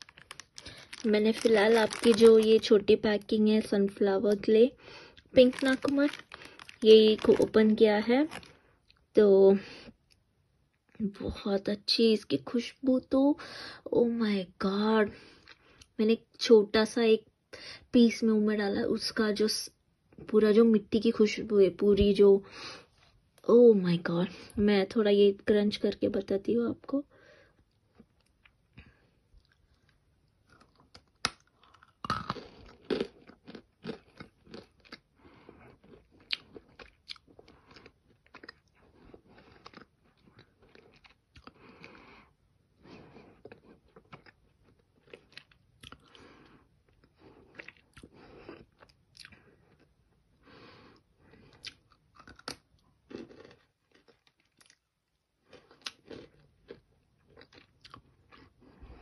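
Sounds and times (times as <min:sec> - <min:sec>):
person crunching dry clay: 0:00.0 - 0:02.7, 0:05.3 - 0:08.6.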